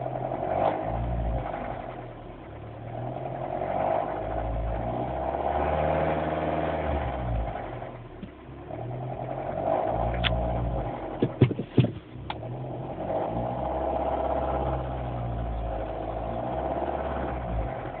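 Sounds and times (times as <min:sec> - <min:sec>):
car engine running with rattle: 0:00.0 - 0:18.0
sharp knocks: 0:11.2 - 0:12.1.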